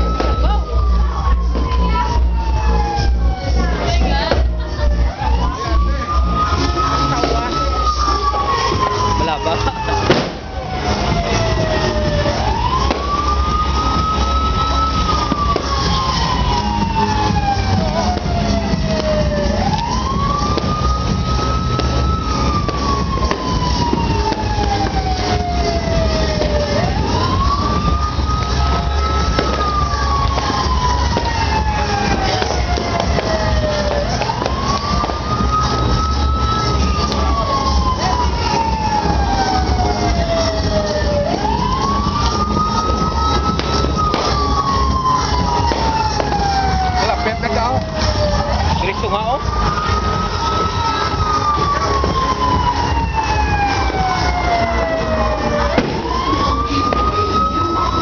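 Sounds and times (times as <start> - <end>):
siren wailing: 0.0 - 58.0
fireworks popping: 6.4 - 47.0, 55.2 - 58.0.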